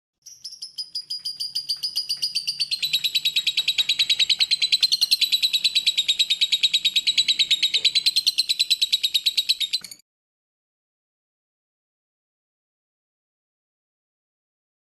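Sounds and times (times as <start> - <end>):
lovebird chattering trill: 0.2 - 10.0.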